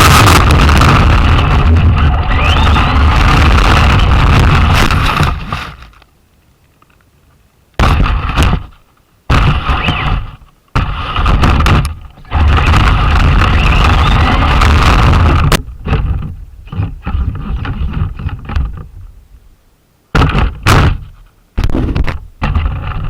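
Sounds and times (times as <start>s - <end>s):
rc car motor rumble: 0.0s - 6.1s, 8.0s - 19.2s.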